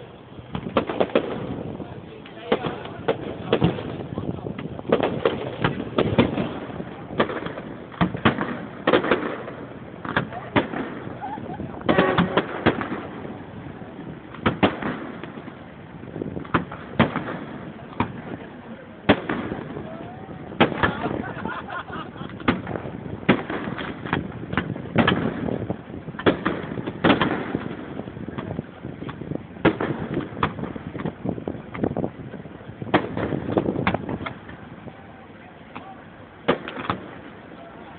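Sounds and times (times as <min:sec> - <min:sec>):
fireworks bangs: 0:00.0 - 0:37.9
murmur of voices: 0:01.0 - 0:24.1, 0:24.7 - 0:37.9.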